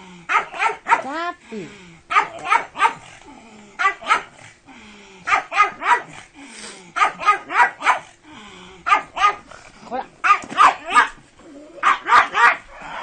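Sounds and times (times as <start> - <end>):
dog barking: 0.3 - 1.2, 2.1 - 3.1, 3.8 - 4.4, 5.3 - 6.2, 7.0 - 8.1, 8.8 - 9.5, 10.2 - 11.2, 11.8 - 12.7.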